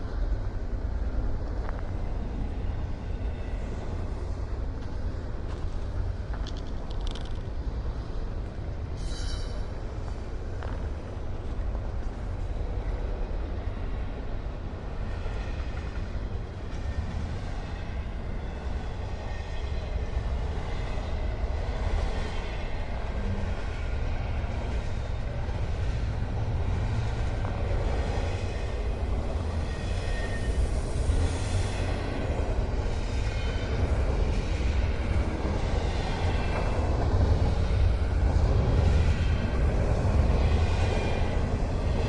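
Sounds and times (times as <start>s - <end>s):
train rumbling on track: 0.0s - 42.0s.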